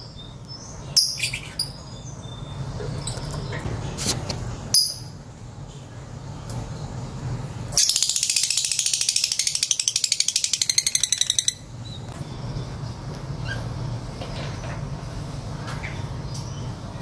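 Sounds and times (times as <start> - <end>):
lovebird chattering trill: 7.8 - 12.0.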